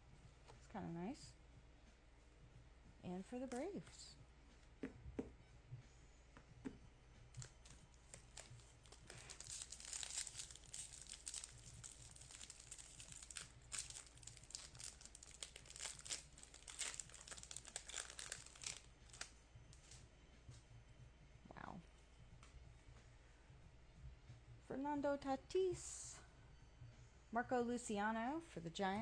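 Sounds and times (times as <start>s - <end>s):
plastic wrapper crinkling and tearing: 7.3s - 20.0s.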